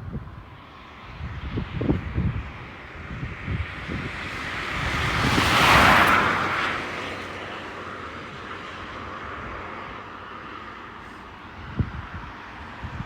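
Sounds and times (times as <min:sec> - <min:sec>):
wind buffeting microphone: 0:00.0 - 0:07.5, 0:11.2 - 0:13.0
jet airliner passing: 0:00.2 - 0:13.0.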